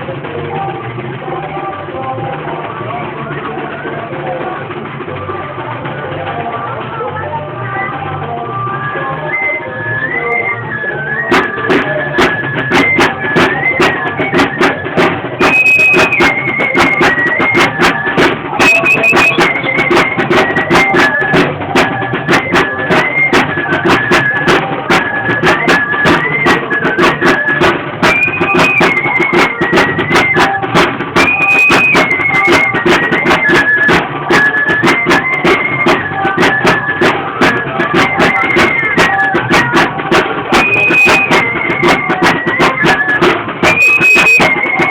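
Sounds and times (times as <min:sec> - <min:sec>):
high flute melody: 0:07.4 - 0:44.9
fast drum beat: 0:11.2 - 0:44.9.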